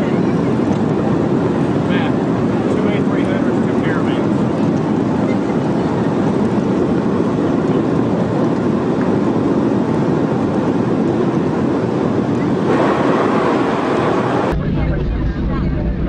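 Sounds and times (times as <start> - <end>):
jet airliner cabin roar: 0.0 - 16.0.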